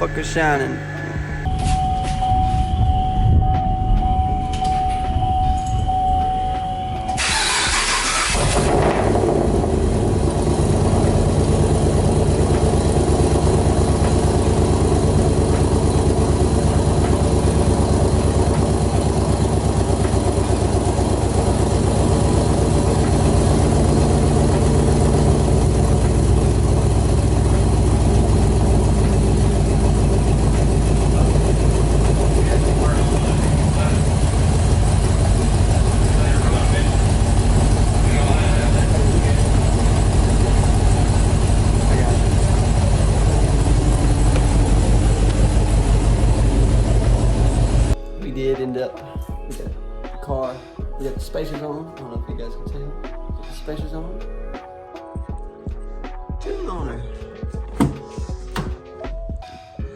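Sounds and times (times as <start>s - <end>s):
steady high tone: 0.0s - 8.6s
car engine starting and idling: 0.0s - 48.6s, 57.6s - 59.0s.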